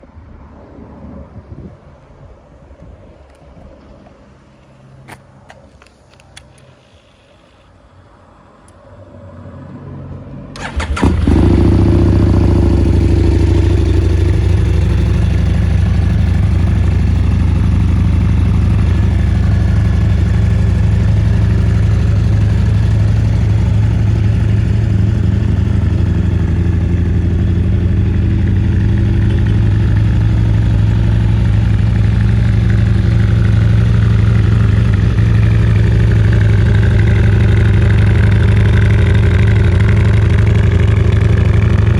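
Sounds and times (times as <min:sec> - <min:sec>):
motorcycle engine idling: 0:10.6 - 0:41.9.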